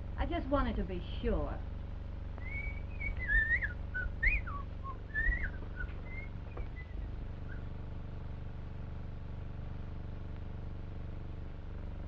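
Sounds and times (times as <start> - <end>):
steady low hum: 0.0 - 12.0
person whistling sliding notes: 2.4 - 7.0.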